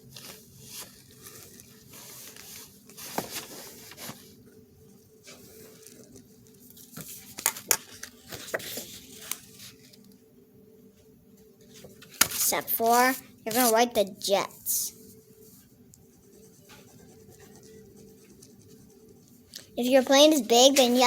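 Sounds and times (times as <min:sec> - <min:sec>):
paper rustling: 0:00.0 - 0:04.4, 0:05.3 - 0:10.1, 0:11.6 - 0:13.8
pen scratching on paper: 0:16.0 - 0:19.4.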